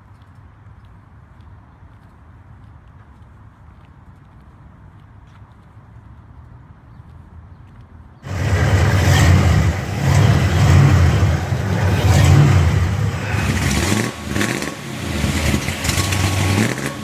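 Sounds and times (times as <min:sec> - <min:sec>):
car engine revving: 0:08.2 - 0:17.0.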